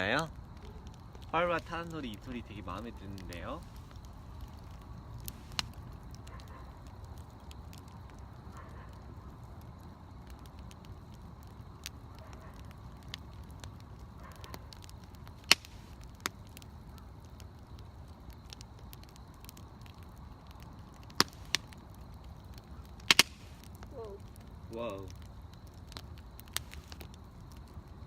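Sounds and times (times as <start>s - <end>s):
bonfire crackling: 0.0s - 28.0s
sharp fire pops: 0.0s - 28.0s.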